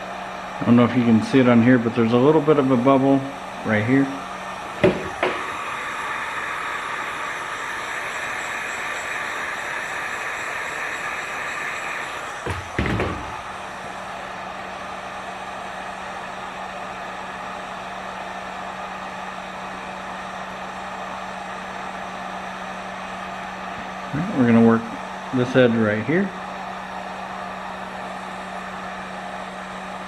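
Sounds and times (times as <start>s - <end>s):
heat gun blowing: 0.0s - 30.0s
brief knock: 12.4s - 13.4s.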